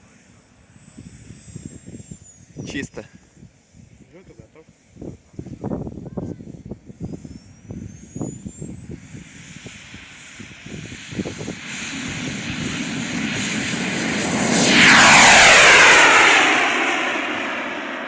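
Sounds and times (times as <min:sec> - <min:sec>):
model jet turbine whistle: 0:00.0 - 0:18.0
jet noise passing: 0:07.3 - 0:18.0.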